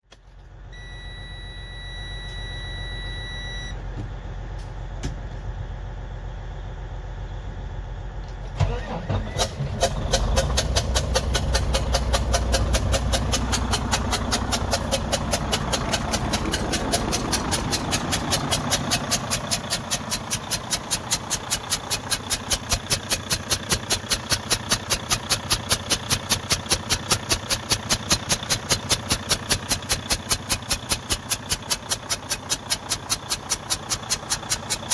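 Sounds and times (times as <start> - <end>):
diesel engine starting and idling: 0.1 - 34.9
brief electronic tone: 0.8 - 3.8.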